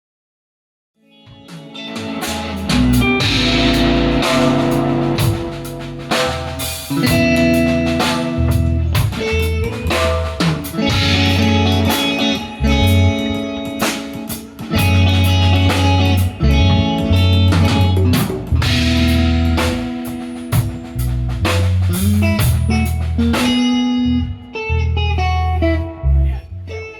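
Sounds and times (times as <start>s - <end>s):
live band playing: 1.2s - 26.1s
drum hits: 2.0s - 13.2s.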